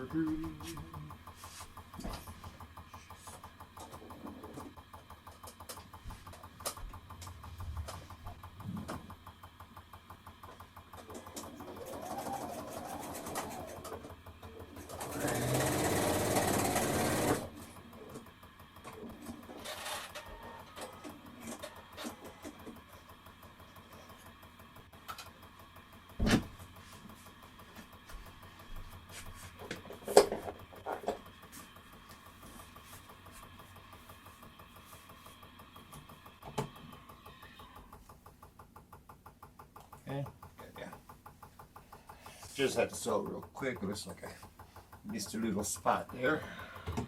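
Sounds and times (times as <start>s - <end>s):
sewing machine stitching: 10.9s - 18.2s, 18.9s - 22.9s.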